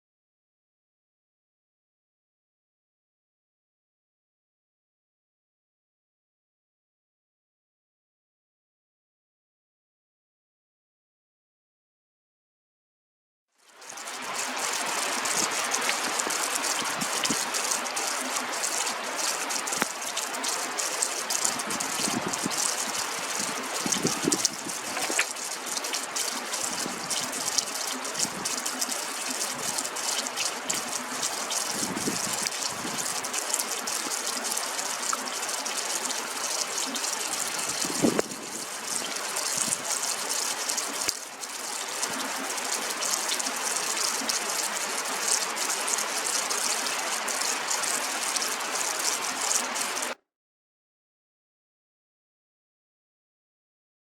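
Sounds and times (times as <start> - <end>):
water rushing: 13.8 - 50.2.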